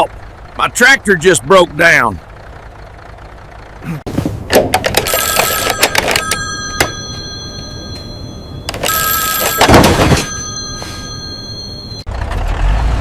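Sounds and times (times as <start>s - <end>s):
bell telephone ringing: 5.0s - 12.1s.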